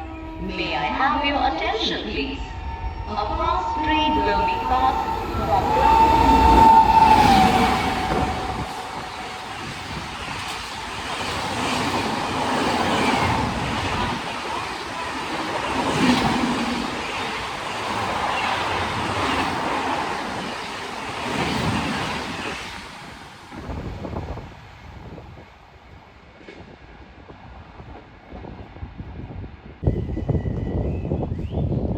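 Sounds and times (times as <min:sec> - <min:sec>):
train horn: 0:02.4 - 0:10.7
train coaches rattling over rail joints: 0:04.0 - 0:23.7.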